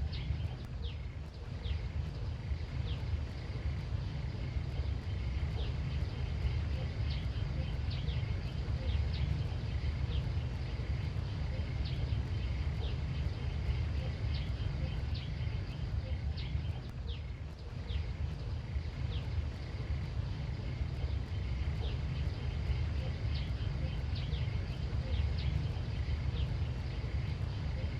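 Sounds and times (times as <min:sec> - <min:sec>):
faint high drone: 0:00.0 - 0:27.9
low rumble: 0:00.0 - 0:27.9.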